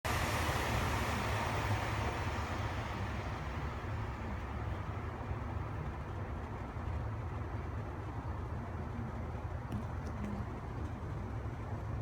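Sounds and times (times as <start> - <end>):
hiss: 0.0 - 4.7
outdoor rumbling: 0.0 - 6.3.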